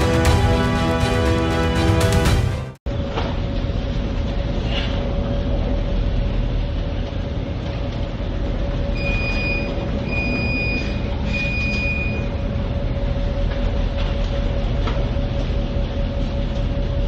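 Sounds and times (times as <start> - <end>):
mechanical rumble with low hum: 2.9 - 17.0
long electronic beeps: 9.0 - 12.4.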